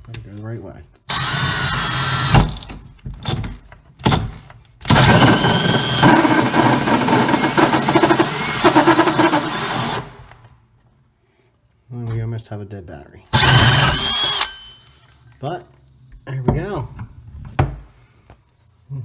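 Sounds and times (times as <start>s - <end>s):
drill cutting wood with hole saw: 1.1s - 2.6s, 4.9s - 10.3s, 13.3s - 14.8s.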